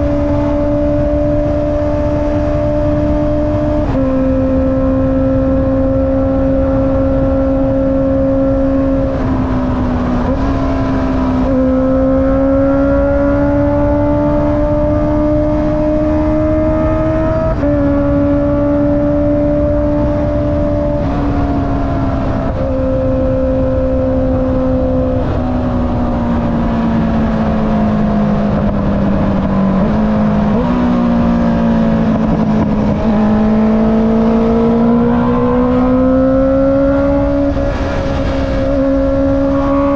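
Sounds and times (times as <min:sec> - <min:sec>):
wind and road rumble: 0:00.0 - 0:39.9
motorcycle engine running: 0:26.5 - 0:39.9.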